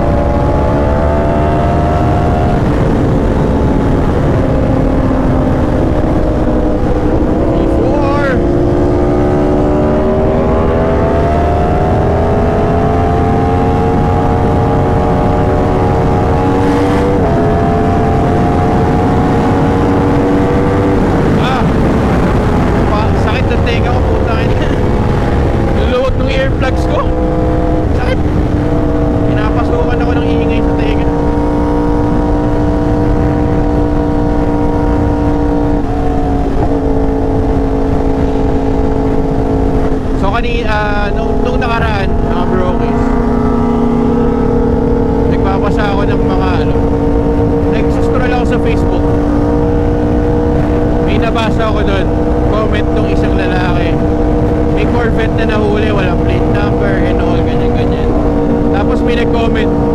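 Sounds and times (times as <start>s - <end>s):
heavy wind rush: 0.0s - 59.9s
motorcycle engine running: 0.0s - 59.9s.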